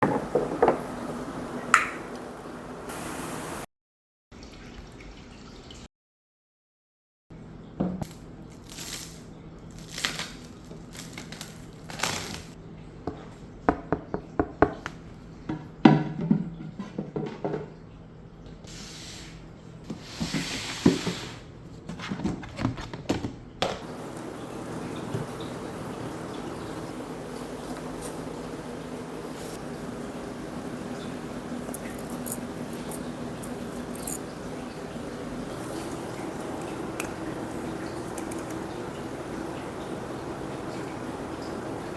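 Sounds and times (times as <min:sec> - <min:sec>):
spray hissing: 0:02.9 - 0:03.6
water dripping and trickling: 0:04.3 - 0:05.9, 0:07.6 - 0:15.5, 0:23.8 - 0:41.9.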